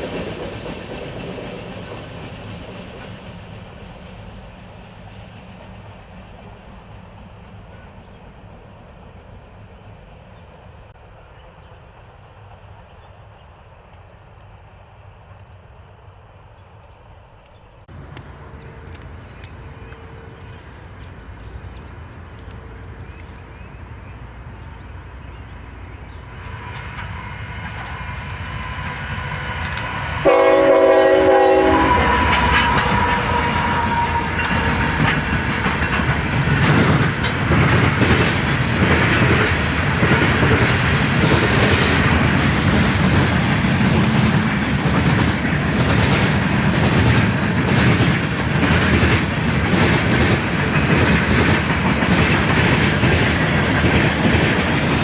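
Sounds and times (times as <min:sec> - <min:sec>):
train wheel clatter: 0:00.0 - 0:06.1, 0:17.9 - 0:55.0
locomotive horn blast: 0:17.9 - 0:38.0
diesel train rumble: 0:17.9 - 0:55.0.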